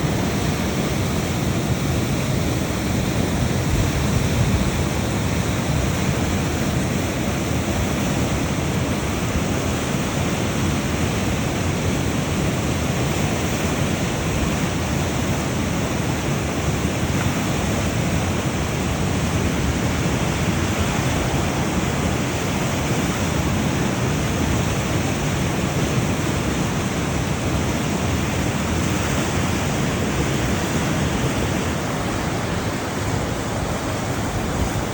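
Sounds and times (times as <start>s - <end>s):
steady rushing noise: 18.0s - 28.4s.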